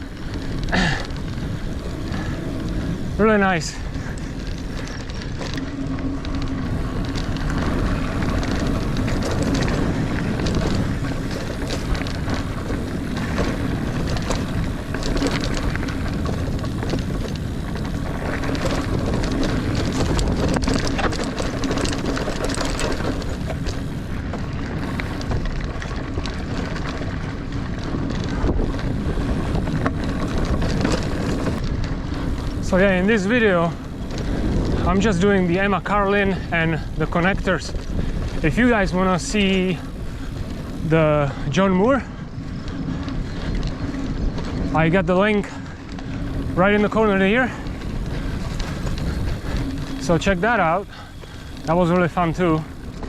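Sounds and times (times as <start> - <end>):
bike chain and frame rattling: 0.0 - 53.0
bike tyres rolling over dirt: 0.0 - 53.0
wind on microphone: 0.0 - 53.0.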